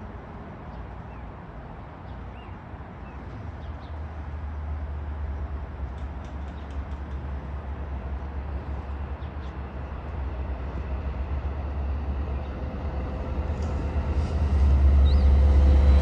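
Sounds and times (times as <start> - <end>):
diesel train approaching: 4.0 - 16.0.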